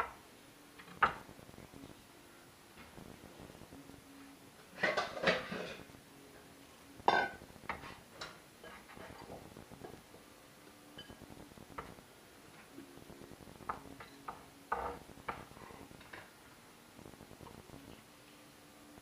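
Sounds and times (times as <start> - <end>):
dishes and utensils clattering: 4.8 - 5.9, 7.1 - 9.9, 11.0 - 11.2.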